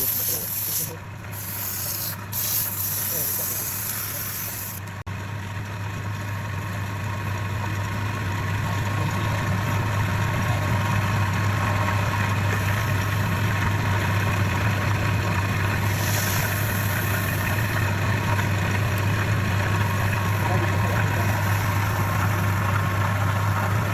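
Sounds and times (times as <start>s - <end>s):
lathe motor humming: 7.4s - 23.9s.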